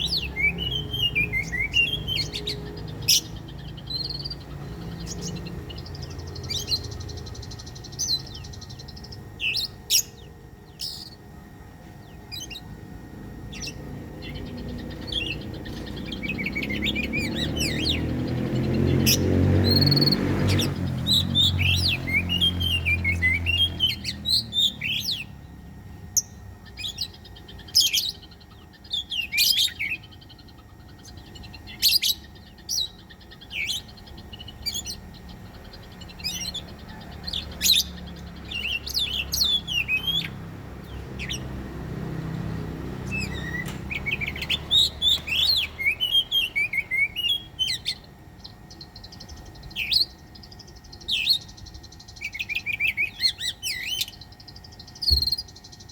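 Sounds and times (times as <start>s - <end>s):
bird singing whistled phrases: 0.0s - 7.3s, 43.1s - 48.0s.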